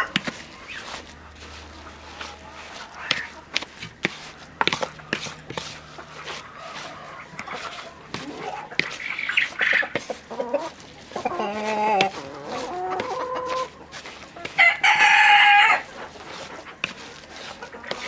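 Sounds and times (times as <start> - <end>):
chickens clucking: 0.0 - 18.0
rooster crowing: 4.8 - 13.8, 14.4 - 15.9.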